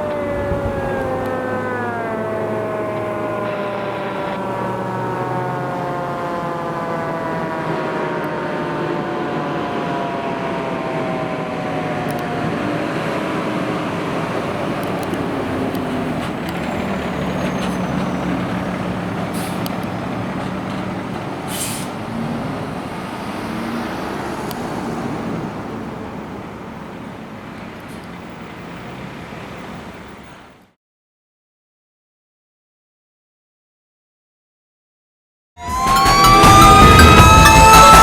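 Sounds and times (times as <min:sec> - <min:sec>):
fire engine siren: 0:00.0 - 0:30.6, 0:35.6 - 0:38.0
truck engine and road noise: 0:00.0 - 0:30.8, 0:35.6 - 0:38.0
short high hisses: 0:21.5 - 0:22.0.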